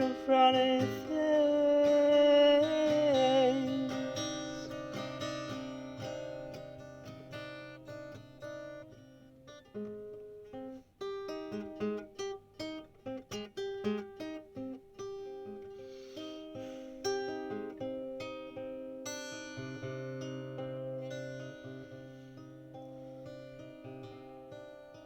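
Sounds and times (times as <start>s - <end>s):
acoustic guitar: 0.0s - 25.0s.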